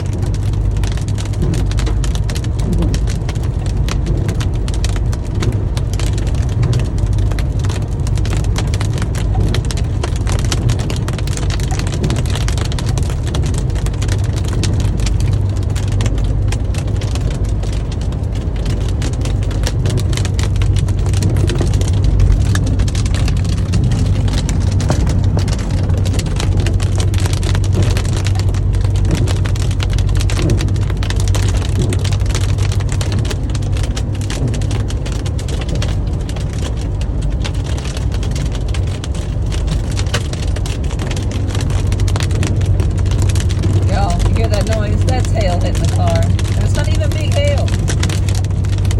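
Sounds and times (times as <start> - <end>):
car driving drone: 0.0 - 48.9
hail and rain on a car: 0.0 - 48.9.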